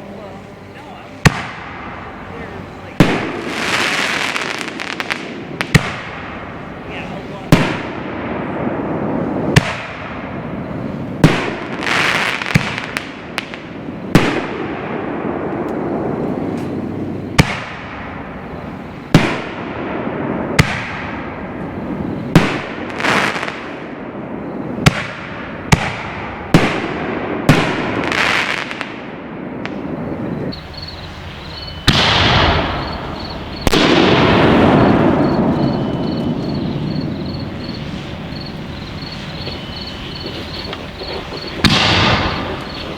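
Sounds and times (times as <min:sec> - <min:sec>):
echo rolling off hills: 0:00.0 - 0:42.9
firework shells bursting: 0:30.5 - 0:42.9.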